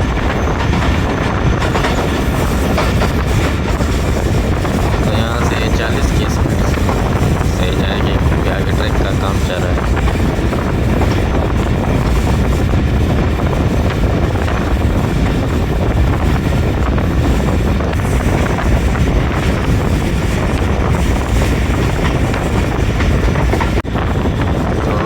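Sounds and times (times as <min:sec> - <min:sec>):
moving vehicle rumble: 0:00.0 - 0:25.0
wind buffeting microphone: 0:00.0 - 0:25.0.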